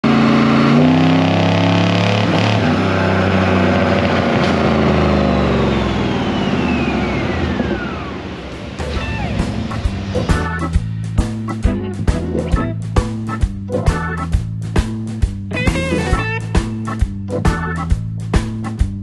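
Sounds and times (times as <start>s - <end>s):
engine running at high revs: 0.0s - 13.2s
whine falling in pitch: 4.4s - 10.9s.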